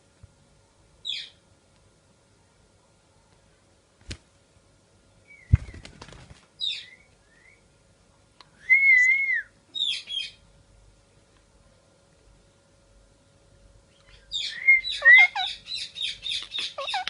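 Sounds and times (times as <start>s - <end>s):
parrot whistle: 8.6s - 10.0s, 14.3s - 15.5s
parrot chirping: 9.8s - 10.4s, 14.0s - 17.0s
harsh parrot calls: 14.1s - 17.0s.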